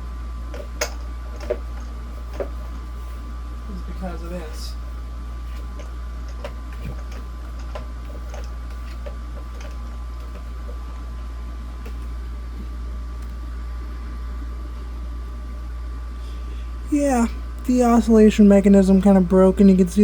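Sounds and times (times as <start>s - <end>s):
table fan humming: 0.0s - 20.0s
fan clicks: 13.2s - 13.4s.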